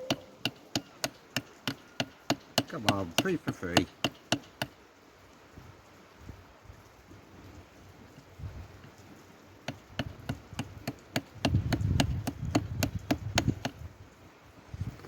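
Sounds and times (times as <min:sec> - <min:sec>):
rock hammer knocking on stone: 0:00.1 - 0:04.8, 0:09.6 - 0:13.9.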